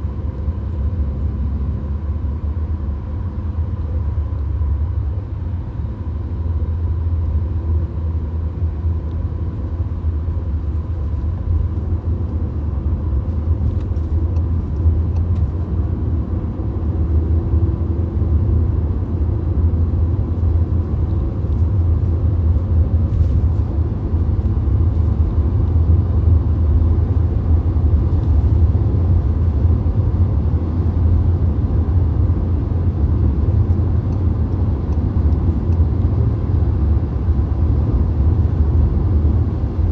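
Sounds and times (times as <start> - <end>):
car road noise from inside: 0.0 - 39.9.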